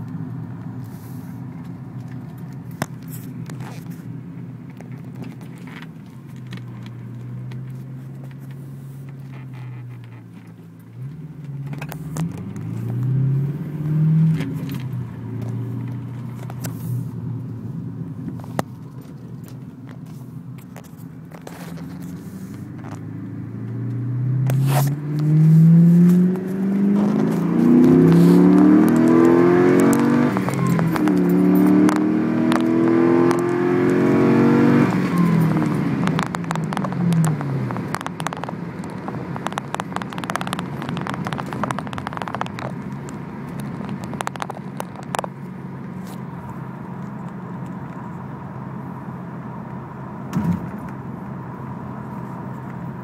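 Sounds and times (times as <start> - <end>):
car engine accelerating: 0.0 - 53.0
phone handling clicks and rustles: 1.6 - 13.0, 18.2 - 23.0, 26.1 - 32.7, 35.0 - 48.1.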